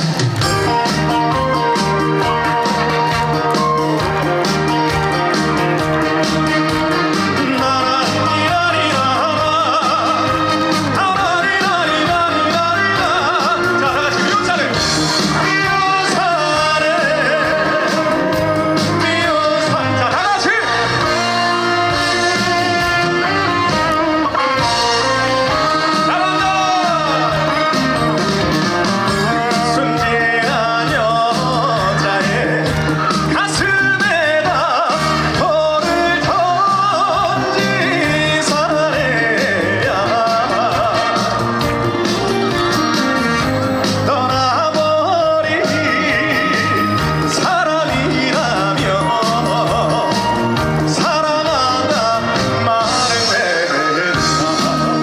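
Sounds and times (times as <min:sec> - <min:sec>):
upbeat trot song over sound system: 0:00.0 - 0:55.0
melody with heavy vibrato: 0:00.4 - 0:55.0.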